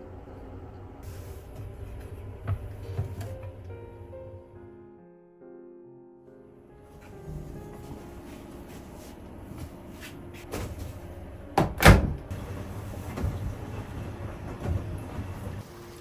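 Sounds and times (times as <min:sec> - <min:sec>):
door shutting double knock: 0:11.6 - 0:12.3.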